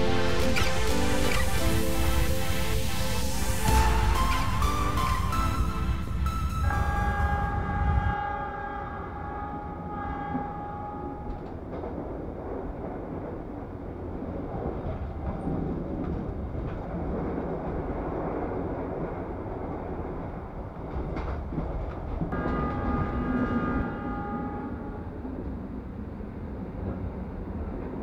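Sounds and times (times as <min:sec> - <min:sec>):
held multi-note tone: 0:00.0 - 0:11.5
train rumble and rush: 0:00.0 - 0:28.0.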